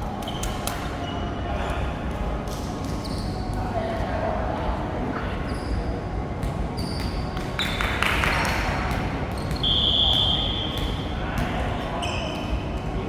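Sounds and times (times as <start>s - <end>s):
sneakers squeaking on court floor: 12.0s - 12.6s.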